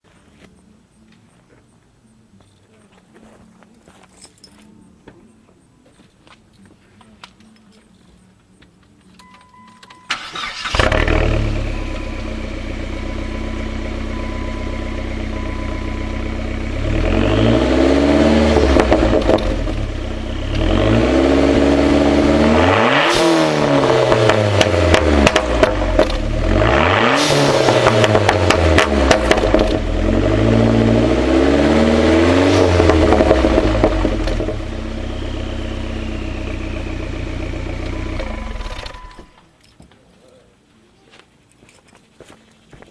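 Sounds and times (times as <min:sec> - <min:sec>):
car engine starting and idling: 0:09.9 - 0:39.5
car engine revving: 0:10.1 - 0:39.3.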